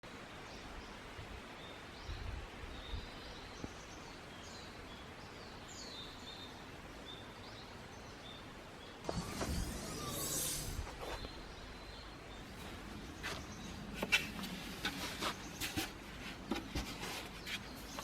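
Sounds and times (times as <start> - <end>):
steady outdoor hiss: 0.0 - 18.0
birds chirping and whistling: 9.1 - 14.4.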